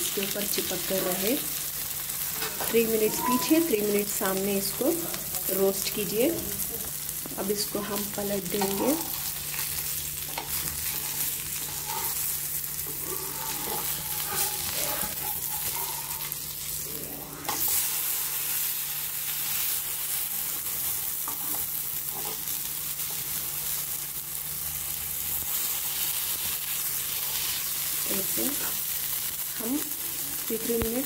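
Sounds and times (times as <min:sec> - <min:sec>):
meat sizzling in oil: 0:00.0 - 0:31.0
metal spatula scraping pan: 0:02.4 - 0:03.9, 0:10.3 - 0:16.6.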